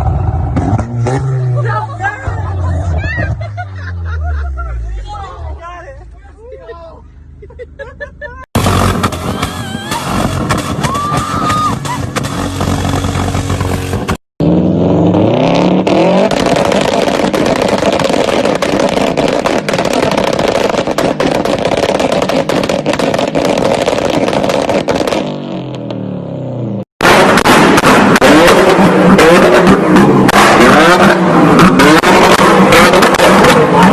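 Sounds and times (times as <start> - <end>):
exhaust popping and crackling: 8.5 - 26.3, 27.0 - 33.9
car engine revving: 8.6 - 33.9.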